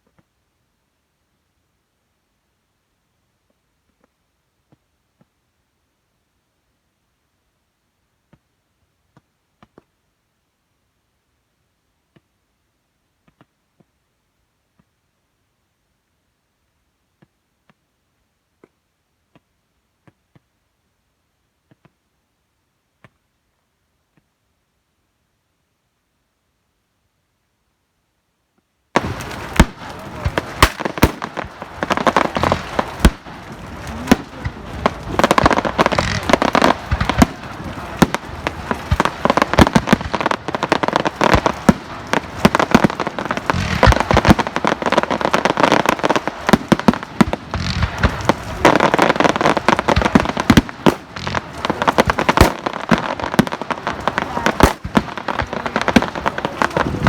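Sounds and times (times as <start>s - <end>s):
fireworks bangs and crackles: 28.9s - 57.0s
crowd voices: 29.0s - 30.7s, 31.6s - 39.2s, 53.8s - 57.0s.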